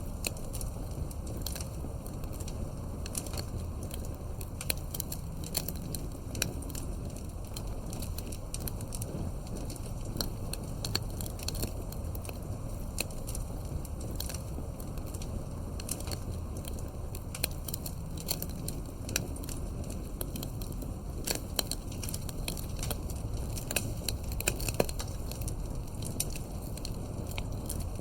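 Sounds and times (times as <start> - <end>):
campfire crackling and popping: 0.0 - 28.0
low background noise: 0.0 - 28.0.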